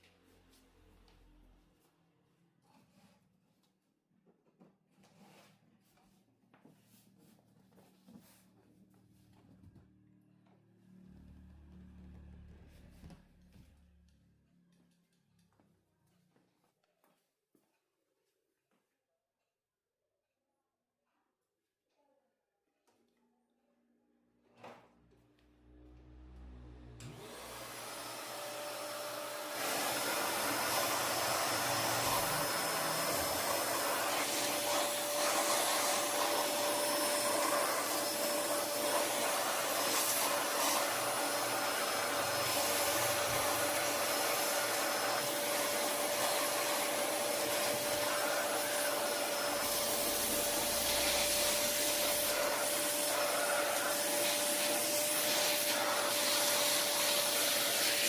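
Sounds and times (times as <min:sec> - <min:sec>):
vacuum cleaner running: 0:10.4 - 0:13.6, 0:24.6 - 0:58.0.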